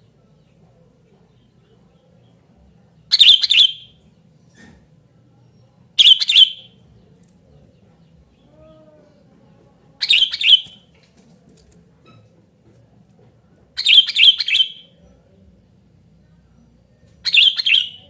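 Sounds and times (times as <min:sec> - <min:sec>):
bulbul singing: 0:03.1 - 0:04.0, 0:06.0 - 0:06.8, 0:10.0 - 0:10.8, 0:13.8 - 0:15.0, 0:17.2 - 0:18.0.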